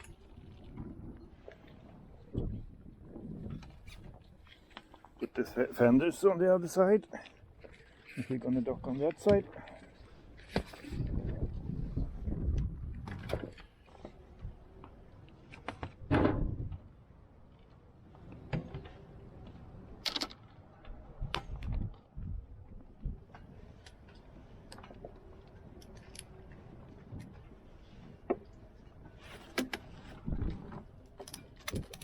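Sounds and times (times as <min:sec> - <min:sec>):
knocks and clicks of gear: 0:30.7 - 0:32.0.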